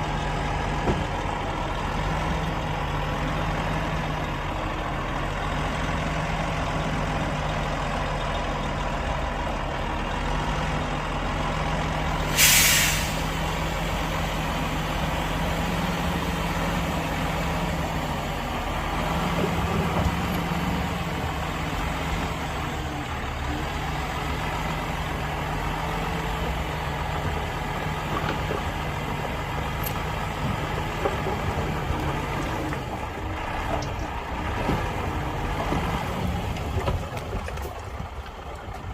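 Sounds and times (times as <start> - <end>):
diesel truck engine running: 0.0 - 38.9
air brakes hissing: 12.2 - 13.4.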